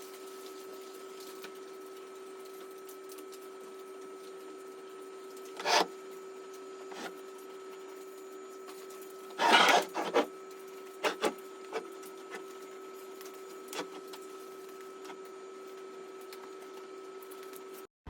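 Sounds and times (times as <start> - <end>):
wooden couch scraping: 5.6 - 5.9, 6.9 - 7.1, 9.4 - 10.3.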